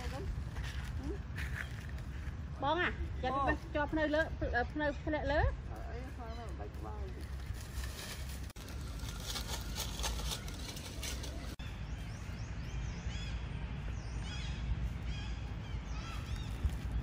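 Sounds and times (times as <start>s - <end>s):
crackly rustle: 5.7s - 11.6s.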